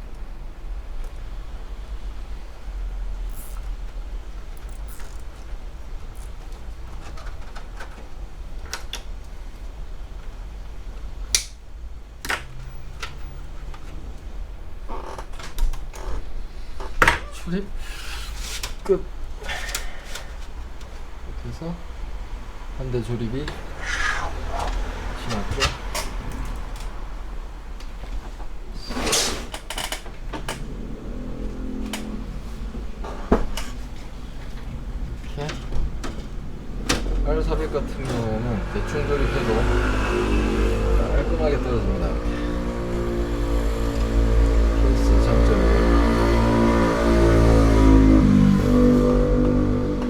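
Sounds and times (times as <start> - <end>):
short scraping rush: 23.6 - 25.2, 36.2 - 46.4
low hum: 30.3 - 50.0.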